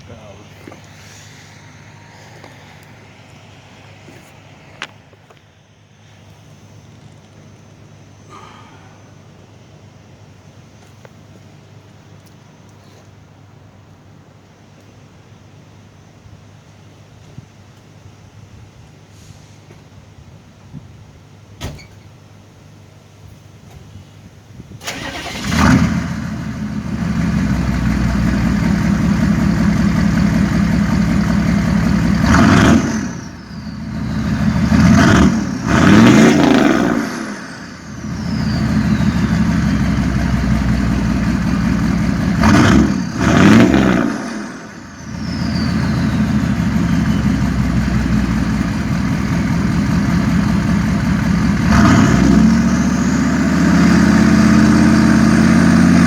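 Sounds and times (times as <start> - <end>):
diesel engine idling: 0.0 - 4.6, 24.8 - 56.0
engine free revs: 24.8 - 56.0.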